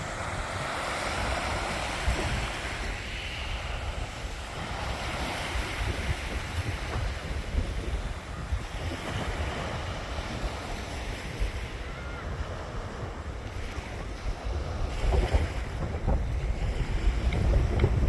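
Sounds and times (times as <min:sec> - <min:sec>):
sea waves breaking on a beach: 0:00.0 - 0:18.0
wind buffeting microphone: 0:00.0 - 0:18.0.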